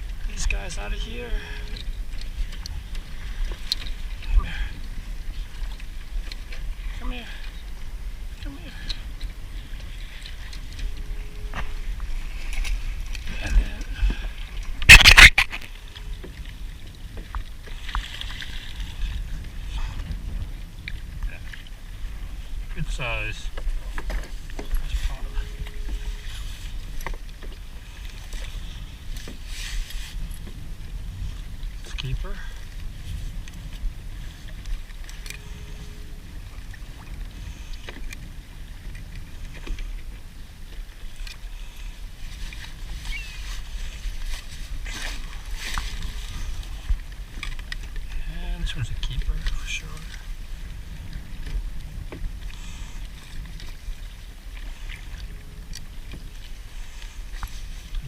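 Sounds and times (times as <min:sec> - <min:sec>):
low rumble: 0:00.0 - 0:58.0
water sloshing against kayak hull: 0:00.0 - 0:58.0
clicks and scrapes of gear: 0:14.8 - 0:15.7.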